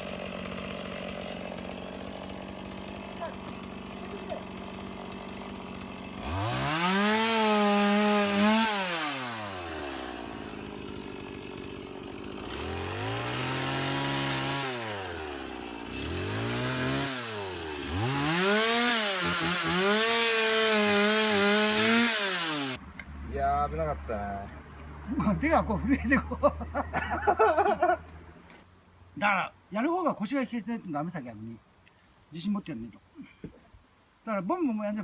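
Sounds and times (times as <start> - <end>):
chainsaw revving and idling: 0.0 - 22.8.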